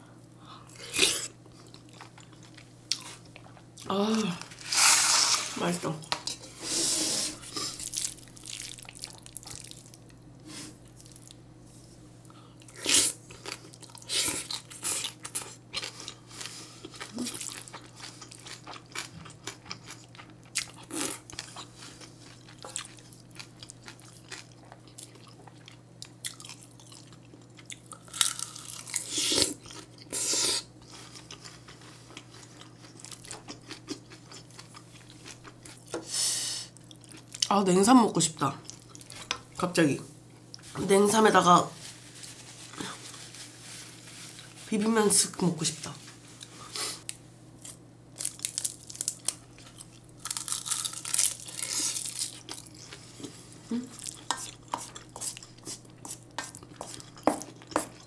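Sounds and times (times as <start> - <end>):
close chewing and biting: 12.6 - 30.2, 53.9 - 58.0.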